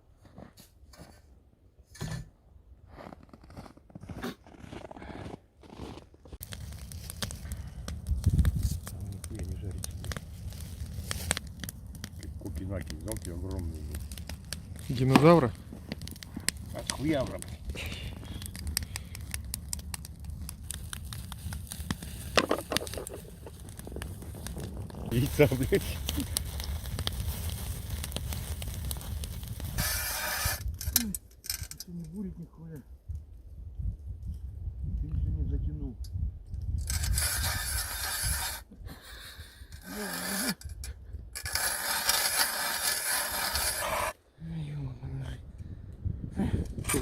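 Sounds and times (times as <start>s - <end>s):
wood fire crackling: 6.2s - 34.9s, 36.0s - 47.0s
low rumble: 7.3s - 29.8s
ice auger scraping through ice: 21.7s - 30.7s, 36.8s - 38.7s, 39.8s - 40.6s, 41.4s - 44.2s.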